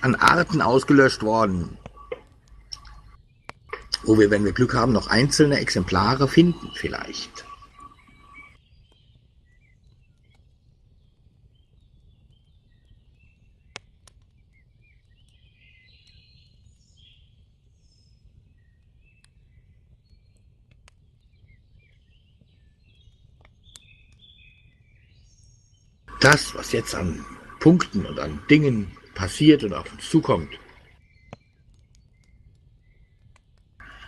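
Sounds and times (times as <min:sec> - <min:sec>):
steady low hum: 0:00.0 - 0:08.5, 0:26.1 - 0:30.9, 0:33.8 - 0:34.0
birds chirping: 0:00.0 - 0:34.0
soft clicks: 0:01.8 - 0:04.1.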